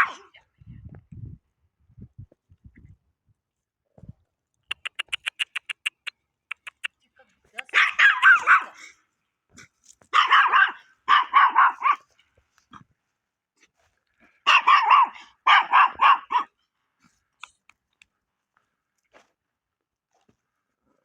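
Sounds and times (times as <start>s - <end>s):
dog barking rapidly: 4.7s - 6.9s, 7.6s - 8.9s, 10.1s - 12.1s, 14.5s - 16.5s.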